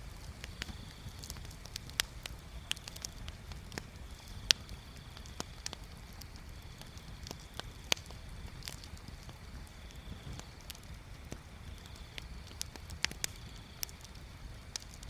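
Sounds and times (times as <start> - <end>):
wood bonfire crackling and popping: 0.0 - 15.0.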